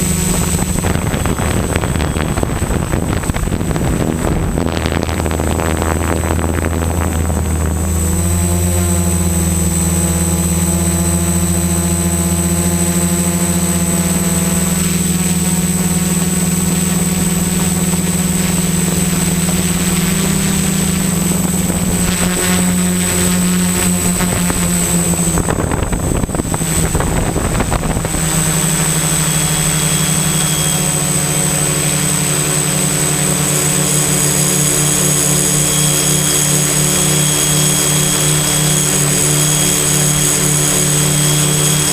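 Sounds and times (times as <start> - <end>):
drone motors humming: 0.0 - 41.9
high whine: 0.0 - 41.9
rush of noise: 0.0 - 41.9.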